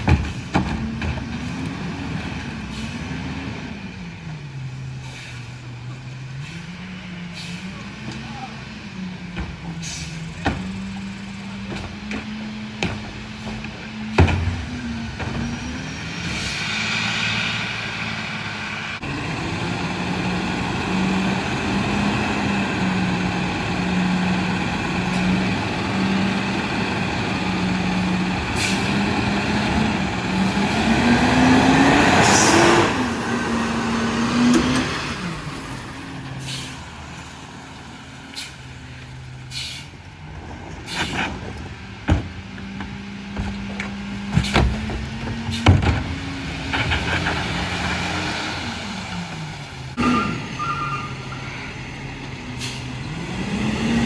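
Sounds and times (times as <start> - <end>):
sharp knocks and clanks: 0.0 - 1.4, 9.3 - 15.8, 40.6 - 48.0
garbage truck engine running: 0.0 - 54.0
air brakes hissing: 4.8 - 7.8, 9.7 - 10.4, 28.5 - 29.0, 36.4 - 37.0, 38.2 - 40.0, 40.9 - 41.4, 52.6 - 53.0.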